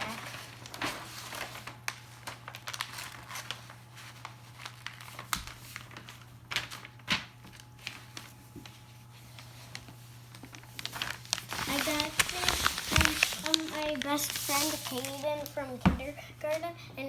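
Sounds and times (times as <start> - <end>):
paper rustling and crinkling: 0.0 - 16.7.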